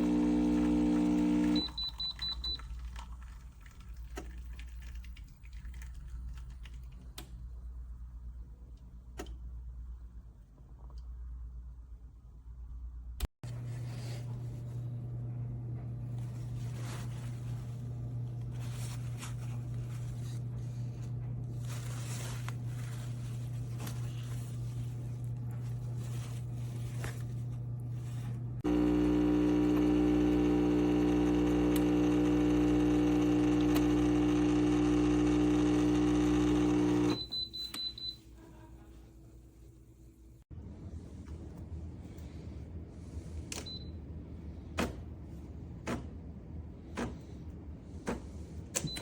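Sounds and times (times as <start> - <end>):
espresso pump humming: 0.0 - 2.6, 27.5 - 37.2.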